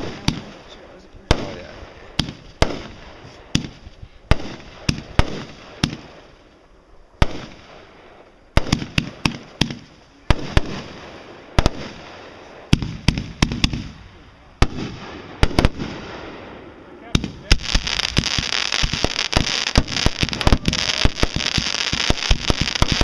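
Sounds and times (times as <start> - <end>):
fireworks bangs: 0.0 - 6.6, 7.2 - 23.0.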